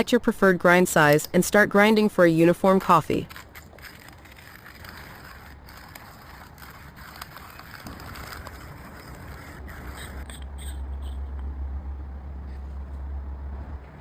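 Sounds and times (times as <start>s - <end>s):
low steady hum: 0.0s - 14.0s
coffee grinder crunching beans: 2.6s - 10.2s.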